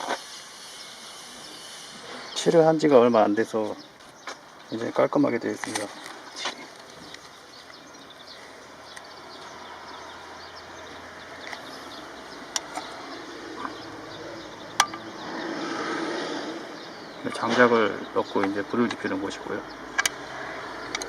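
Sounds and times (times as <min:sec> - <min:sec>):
outdoor background noise: 0:00.0 - 0:21.0
sharp clicks: 0:14.7 - 0:15.1, 0:19.9 - 0:21.0.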